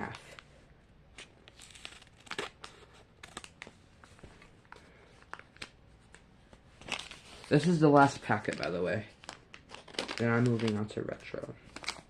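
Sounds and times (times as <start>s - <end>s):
plastic wrapper crinkling: 1.5s - 3.8s, 6.8s - 12.0s.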